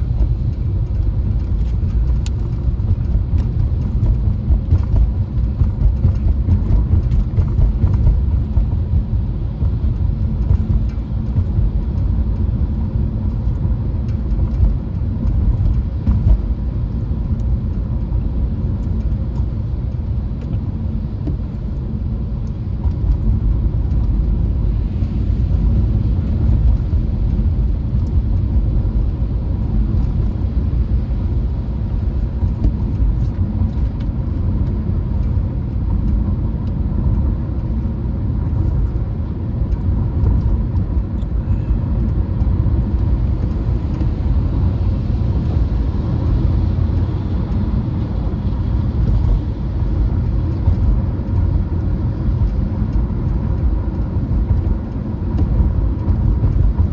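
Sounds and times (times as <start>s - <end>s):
car driving rumble: 0.0s - 56.9s.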